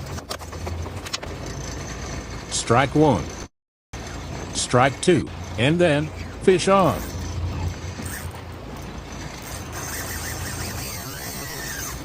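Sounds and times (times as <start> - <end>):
fishing reel ratcheting: 7.0 - 8.4, 9.0 - 12.0.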